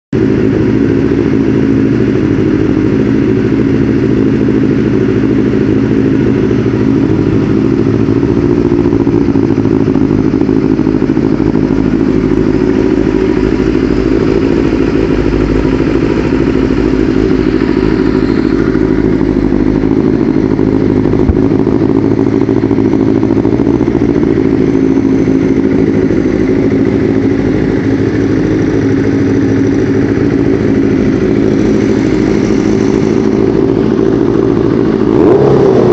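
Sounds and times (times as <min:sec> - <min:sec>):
motorcycle engine running: 0:00.1 - 0:35.9.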